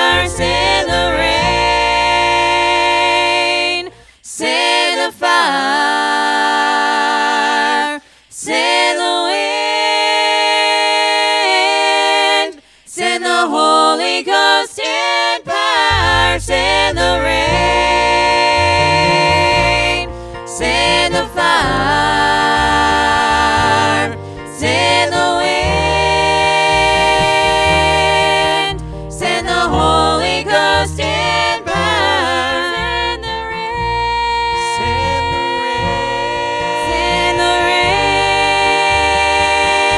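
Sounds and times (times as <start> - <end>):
pulsing bass line: 0.0 - 4.0, 15.9 - 39.9
gospel voices singing in harmony: 0.0 - 39.9.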